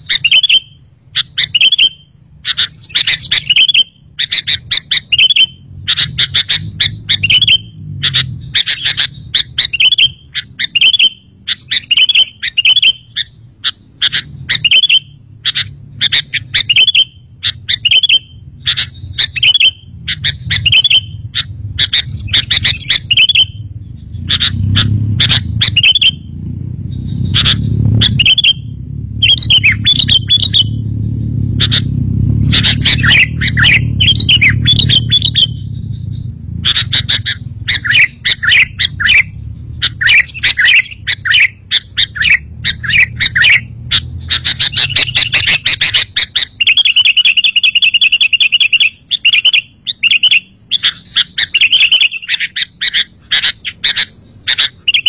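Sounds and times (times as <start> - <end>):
bird chirping: 0.0 - 55.0
low rumble: 17.2 - 45.9.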